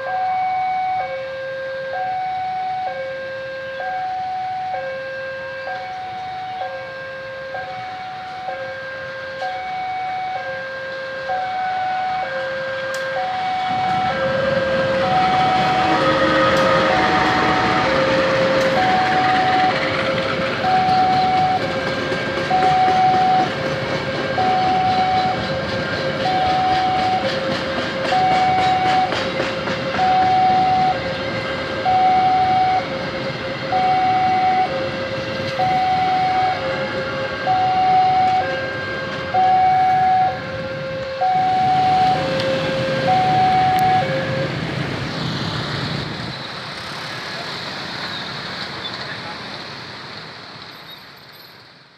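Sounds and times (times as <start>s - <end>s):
level-crossing warning alarm: 0.0s - 45.5s
train wheels clacking on rails: 12.6s - 39.5s.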